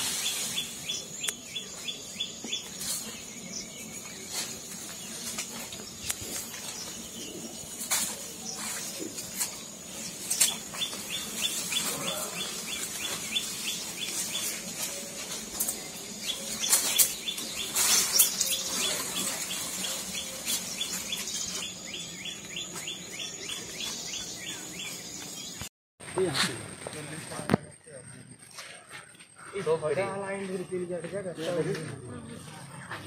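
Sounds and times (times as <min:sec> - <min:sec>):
high insect whine: 0:00.0 - 0:25.6
undergrowth rustling and crackling: 0:00.0 - 0:27.6
bird chirping rapidly: 0:10.1 - 0:14.6.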